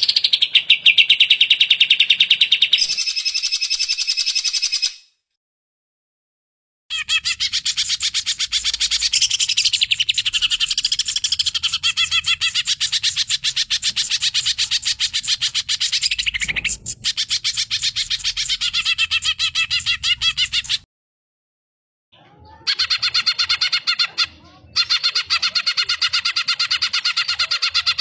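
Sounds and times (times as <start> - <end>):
bird singing chattering notes: 6.9 - 20.8.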